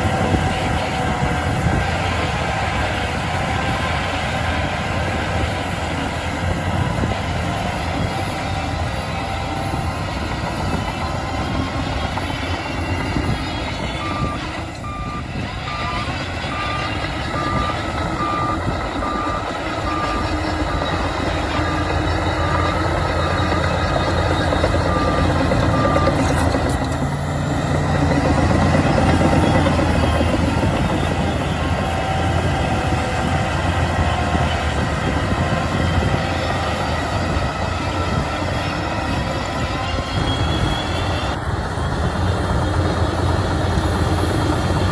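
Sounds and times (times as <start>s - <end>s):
bulldozer diesel engine running: 0.0s - 44.9s
reversing alarm beeping: 9.4s - 31.6s.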